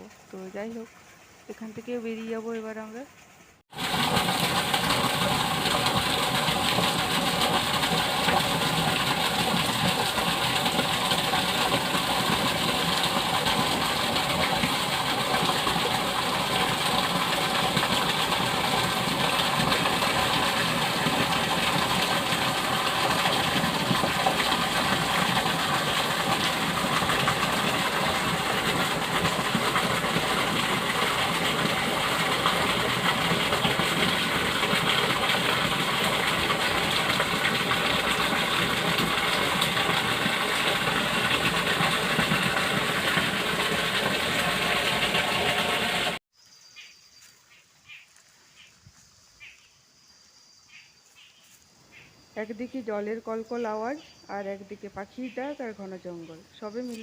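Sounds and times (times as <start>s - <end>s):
water rushing over lock gate: 3.7s - 46.2s.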